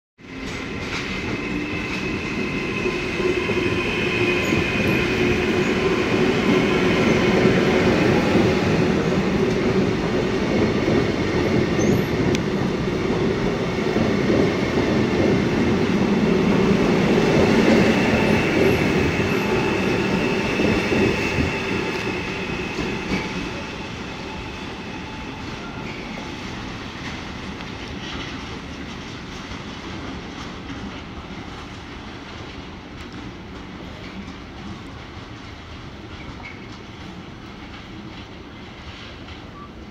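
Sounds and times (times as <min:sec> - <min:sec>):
train high whine: 0:00.2 - 0:29.0
train wheels rumbling on rails: 0:00.2 - 0:39.9.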